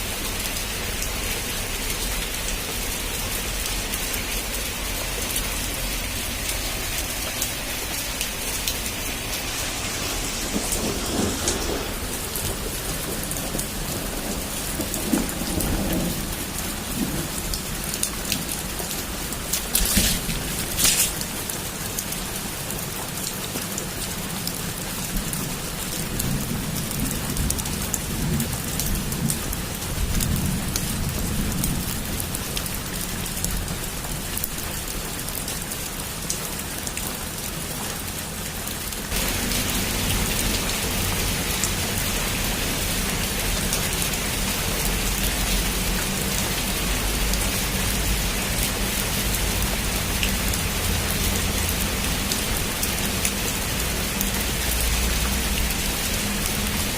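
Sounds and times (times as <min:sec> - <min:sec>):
heavy rain pouring: 0:00.0 - 0:56.9
distant thunder rumbling: 0:07.6 - 0:18.9.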